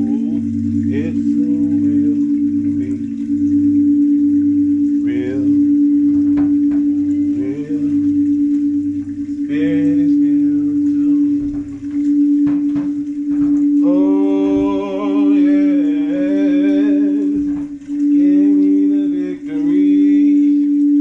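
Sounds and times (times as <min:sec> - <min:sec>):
person humming: 0:00.0 - 0:03.4, 0:09.4 - 0:11.6, 0:13.7 - 0:21.0
singing bowl tone: 0:00.0 - 0:21.0.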